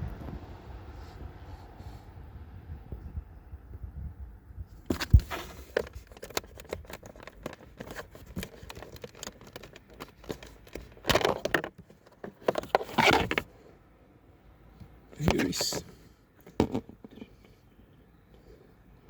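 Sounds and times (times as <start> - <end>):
plastic parts clicking: 4.9 - 13.5
rustling plastic scrapes: 4.9 - 13.5.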